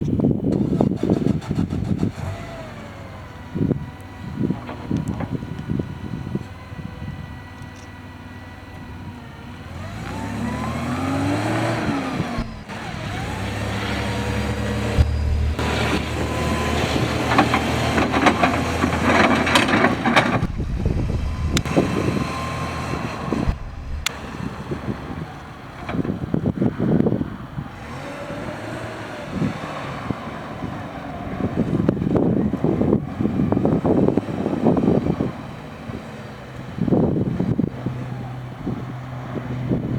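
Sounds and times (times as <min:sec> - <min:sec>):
engine rattles and knocks: 0:00.0 - 0:39.9
forklift engine revving: 0:00.0 - 0:39.9
rattling knocks: 0:14.8 - 0:22.5.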